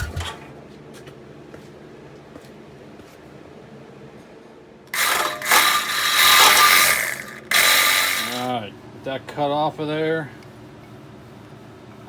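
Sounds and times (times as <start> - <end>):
electric drill grinding into metal: 4.9 - 8.5.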